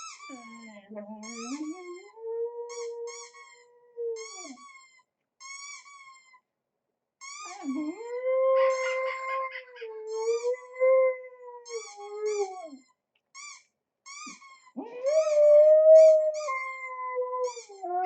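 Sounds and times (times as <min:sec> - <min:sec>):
dog howling: 0:07.5 - 0:12.7, 0:14.8 - 0:18.0.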